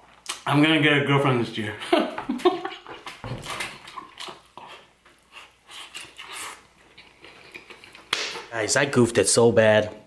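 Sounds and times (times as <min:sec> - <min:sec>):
man chewing food: 0:02.1 - 0:08.6.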